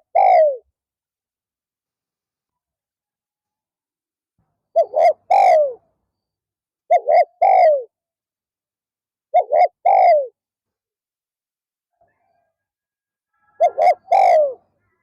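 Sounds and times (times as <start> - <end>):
dove cooing: 0.0 - 0.7, 4.7 - 5.8, 6.9 - 7.9, 9.3 - 10.4, 13.3 - 14.7.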